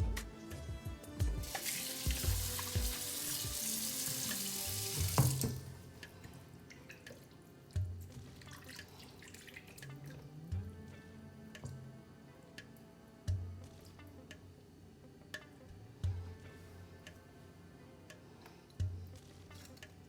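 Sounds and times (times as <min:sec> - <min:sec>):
tap running into sink: 0:01.4 - 0:05.8.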